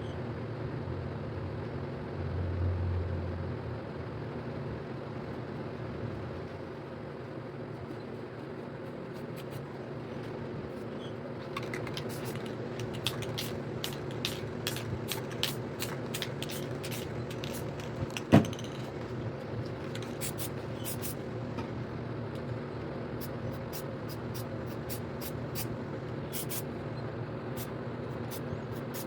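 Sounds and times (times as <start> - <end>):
steady low hum: 0.0 - 29.0
spray paint can hissing: 11.6 - 18.9, 20.0 - 21.2, 23.2 - 26.6, 27.6 - 29.0.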